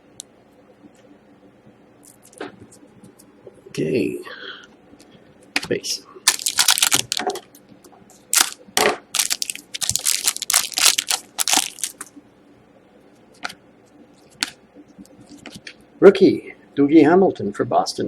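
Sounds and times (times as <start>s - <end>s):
crinkling of card packaging: 6.3s - 7.4s, 8.3s - 12.1s.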